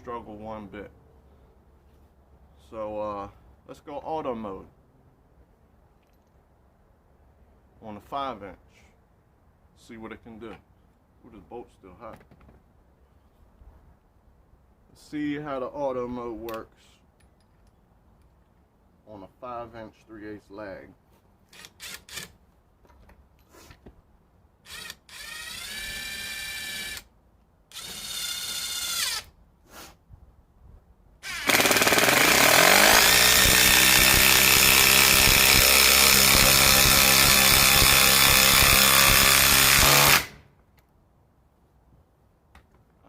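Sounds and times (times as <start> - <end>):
impact driver whining: 31.2 - 40.4
impact driver hammering: 31.4 - 40.4.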